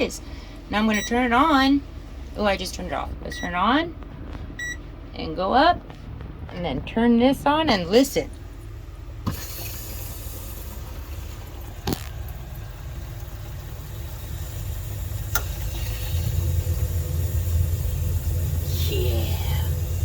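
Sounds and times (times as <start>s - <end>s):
water heater low rumble: 0.0s - 20.0s.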